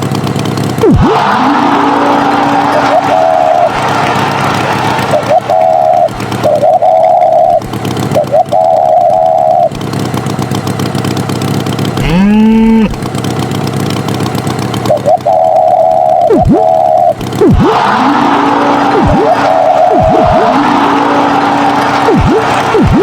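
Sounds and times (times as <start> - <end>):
cartoon motor running: 0.0 - 23.0
wavering horn-like tone: 0.8 - 9.8, 15.0 - 23.0
cartoon swoops: 12.0 - 13.0.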